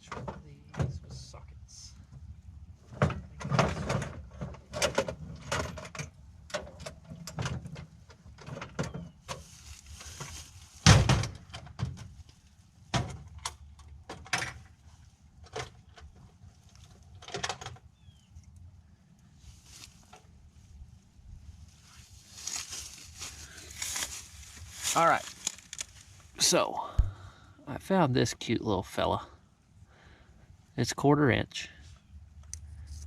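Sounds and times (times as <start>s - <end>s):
tools rummaged clacking and rattling: 2.9s - 9.1s.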